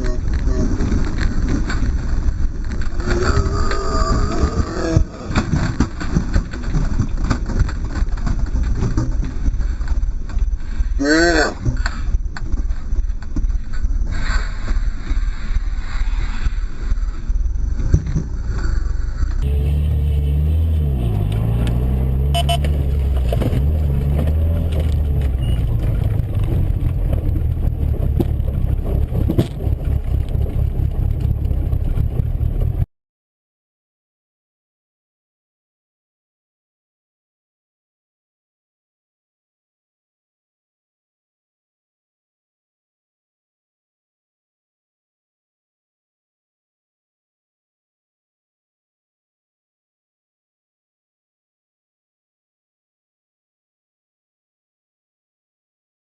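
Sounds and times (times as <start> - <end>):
road and wind noise: 0.0 - 32.9
car engine: 16.9 - 32.9
small knocks and bumps: 22.6 - 32.8.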